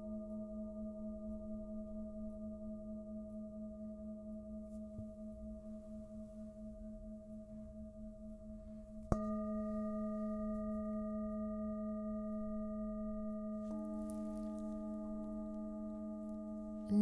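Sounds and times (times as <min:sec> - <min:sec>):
lower singing bowl tone: 0:00.0 - 0:17.0
singing bowls ringing: 0:09.1 - 0:17.0.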